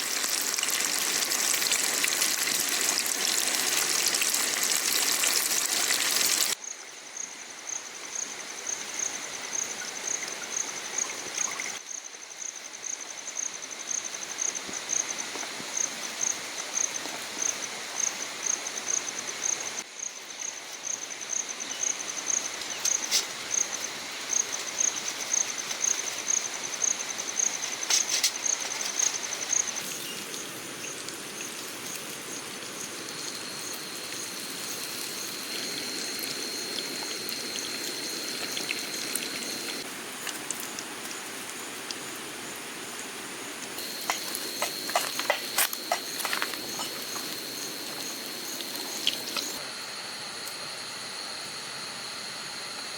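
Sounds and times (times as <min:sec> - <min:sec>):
rushing water: 0:00.0 - 0:06.6, 0:29.2 - 0:49.6
steady outdoor hiss: 0:00.0 - 0:52.9
insect chirping in fast pulses: 0:32.8 - 0:39.8, 0:43.8 - 0:52.6.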